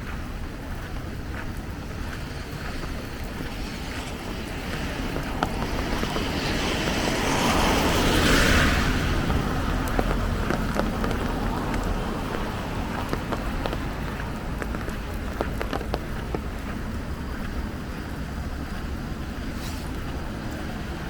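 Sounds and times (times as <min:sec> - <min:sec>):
raindrop ticks: 0:00.0 - 0:21.0
steady rain rumble: 0:00.0 - 0:21.0
vehicle tyres hissing on wet road: 0:00.1 - 0:21.0.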